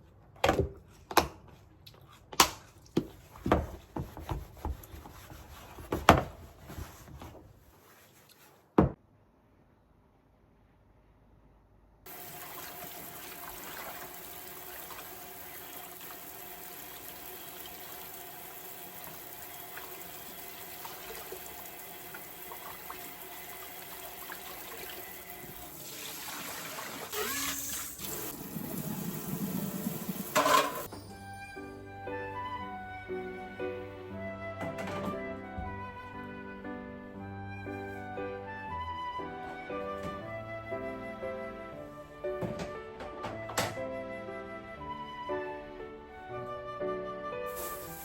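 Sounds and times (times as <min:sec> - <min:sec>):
water running: 0:12.1 - 0:30.9, 0:47.5 - 0:48.0.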